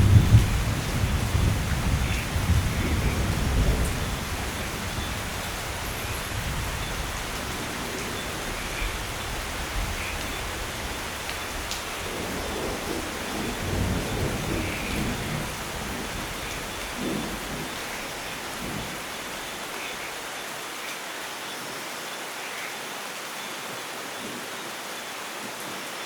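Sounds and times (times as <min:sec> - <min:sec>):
thunder rumble: 0:00.0 - 0:19.1
steady rain hissing: 0:00.0 - 0:26.0.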